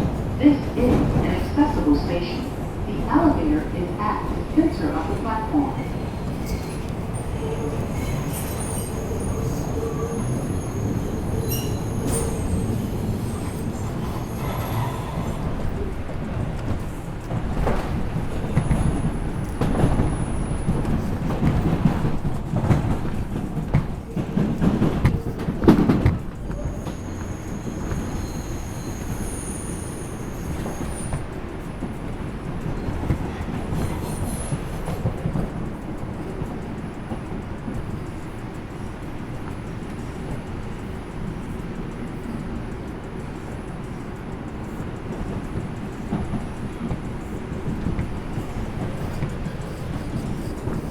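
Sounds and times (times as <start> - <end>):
subway wheels rumbling on rail: 0.0 - 50.9
high wheel squeals: 5.8 - 16.3, 26.4 - 31.3.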